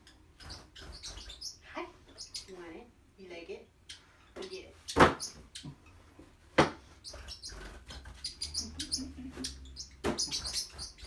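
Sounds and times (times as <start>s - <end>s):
bird squeaky chirps: 0.0s - 1.6s, 3.8s - 5.7s, 7.0s - 11.0s.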